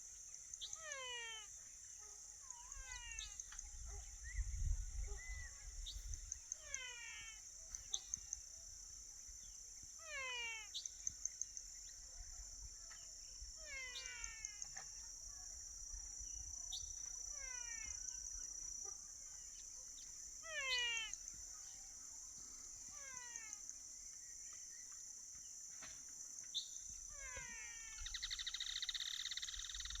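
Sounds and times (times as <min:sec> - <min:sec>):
descending animal calls: 0:02.5 - 0:04.0, 0:20.4 - 0:21.2
high insect drone: 0:25.8 - 0:30.0.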